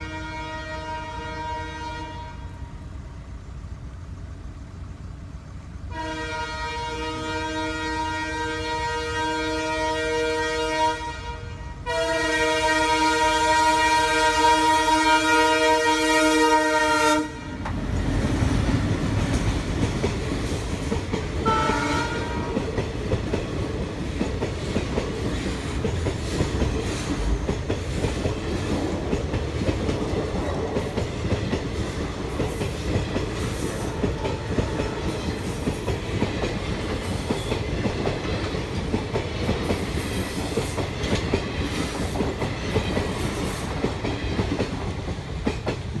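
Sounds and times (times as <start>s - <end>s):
train horn: 0.0s - 2.9s, 5.9s - 17.7s, 21.4s - 22.8s, 33.5s - 35.7s
train rumbling past: 0.0s - 46.0s.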